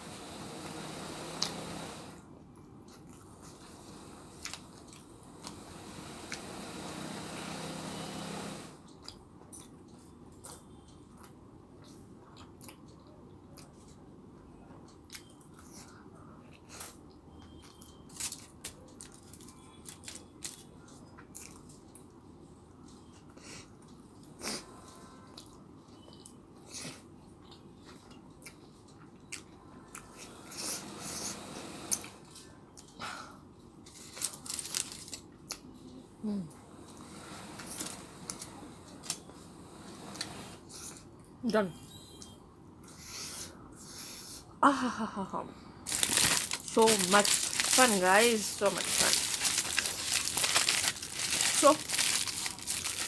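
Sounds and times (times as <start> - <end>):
person chewing crunchy food: 45.9 - 53.0.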